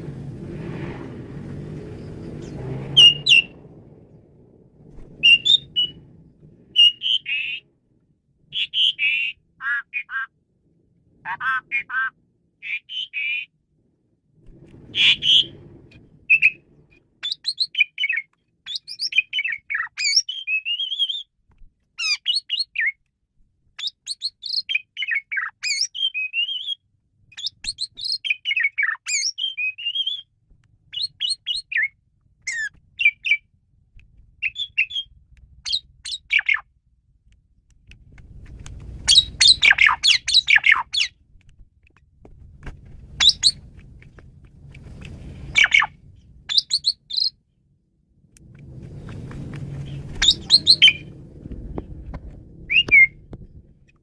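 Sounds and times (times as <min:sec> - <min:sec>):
starling singing: 0:02.0 - 0:03.6, 0:05.2 - 0:06.1, 0:06.7 - 0:07.7, 0:08.5 - 0:10.3, 0:11.3 - 0:13.5, 0:14.9 - 0:15.6, 0:16.3 - 0:21.3, 0:22.0 - 0:23.0, 0:23.8 - 0:30.3, 0:30.9 - 0:33.5, 0:34.4 - 0:36.6, 0:39.0 - 0:41.2, 0:43.2 - 0:43.6, 0:45.5 - 0:47.4, 0:49.8 - 0:51.2, 0:52.7 - 0:53.2
harsh bird chatter bursts: 0:14.9 - 0:15.6, 0:39.0 - 0:41.2, 0:43.2 - 0:43.6, 0:45.4 - 0:45.9, 0:49.8 - 0:51.1.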